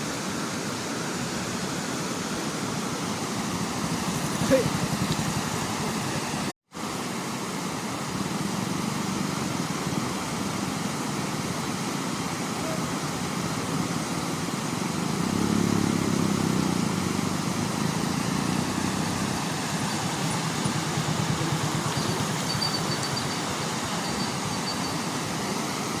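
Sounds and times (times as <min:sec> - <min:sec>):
floodwater rushing: 0:00.0 - 0:26.0
vehicle engine running: 0:03.4 - 0:06.5, 0:15.0 - 0:24.9.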